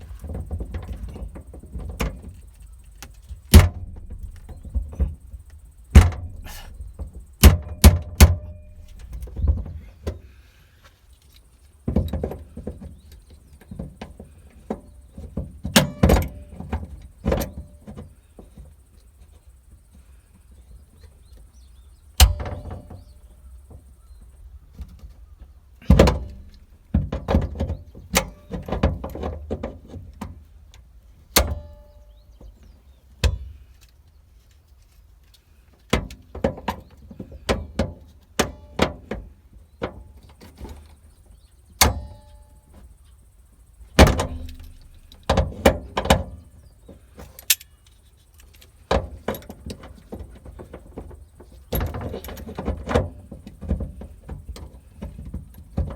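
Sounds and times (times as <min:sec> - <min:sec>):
sharp knocks and clicks: 0:03.0 - 0:10.2.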